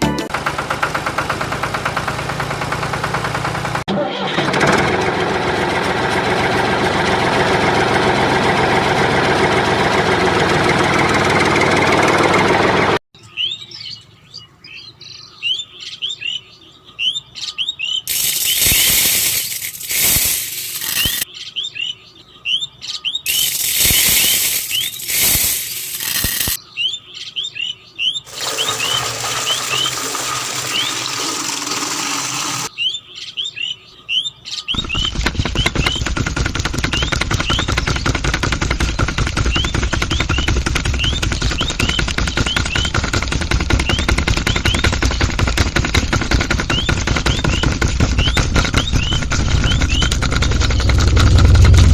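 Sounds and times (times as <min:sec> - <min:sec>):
small engine running loudly: 0:00.0 - 0:13.0, 0:18.1 - 0:21.2, 0:23.3 - 0:26.6, 0:28.3 - 0:32.7, 0:34.8 - 0:51.9
birds chirping: 0:13.2 - 0:51.9
loud hissing noise: 0:18.1 - 0:21.2, 0:23.3 - 0:26.6.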